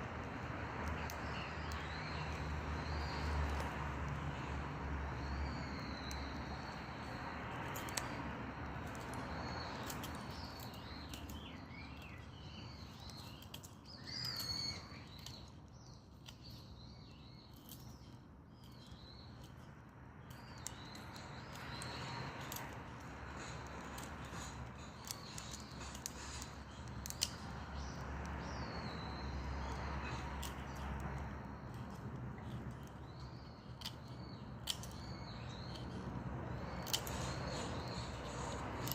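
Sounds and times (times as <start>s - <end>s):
birds calling: 0.9s - 19.5s.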